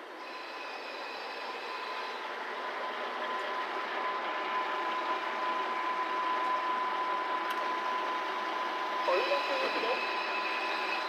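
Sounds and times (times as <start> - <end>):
diesel railcar engine rumble: 0.0 - 11.0
steady high tone: 9.0 - 11.0.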